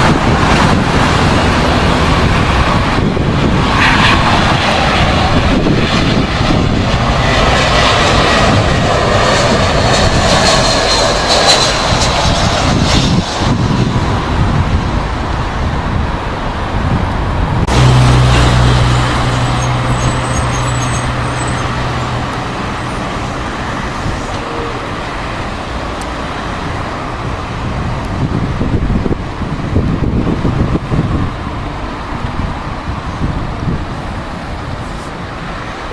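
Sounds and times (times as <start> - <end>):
jet airliner engines roaring: 0.0 - 35.9.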